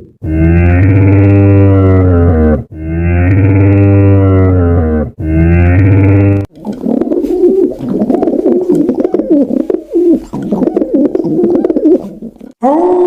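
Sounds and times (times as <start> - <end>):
cow mooing: 0.2 - 6.5.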